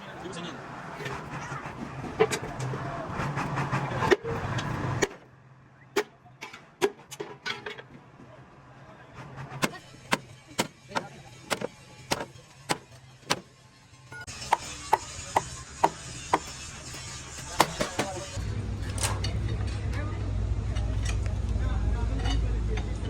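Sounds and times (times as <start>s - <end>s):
loud workshop noise: 0.0s - 23.0s
hammer strikes on metal: 9.6s - 13.5s, 14.3s - 18.4s.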